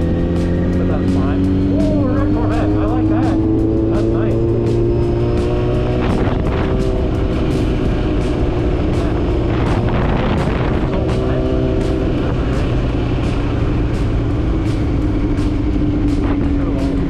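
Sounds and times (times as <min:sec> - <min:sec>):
motorcycle engine running: 0:00.0 - 0:17.0
wind rumble on microphone: 0:05.8 - 0:17.0.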